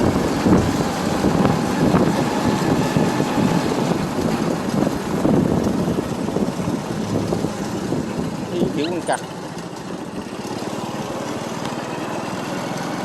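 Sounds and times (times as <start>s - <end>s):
wind rushing over microphone: 0.0s - 9.0s
motorbike running: 0.0s - 13.0s.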